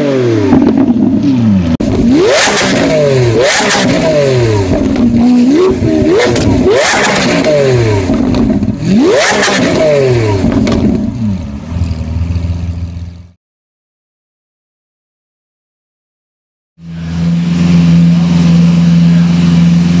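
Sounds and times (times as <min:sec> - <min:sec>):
car engine revving: 0:00.0 - 0:13.3, 0:16.8 - 0:20.0
exhaust crackling and popping: 0:00.5 - 0:12.5.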